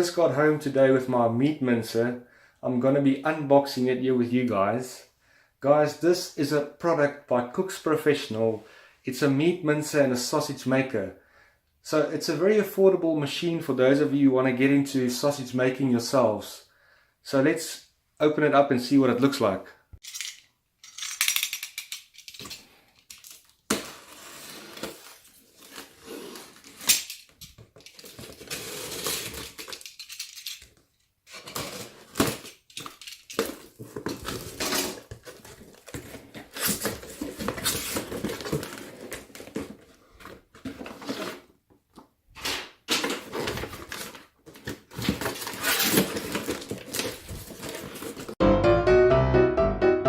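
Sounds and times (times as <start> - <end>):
hard parts clicking and knocking: 20.0 - 23.5, 29.5 - 30.8, 32.4 - 34.2
packaging rustling and tearing: 23.2 - 30.2, 31.3 - 41.5, 43.0 - 48.4.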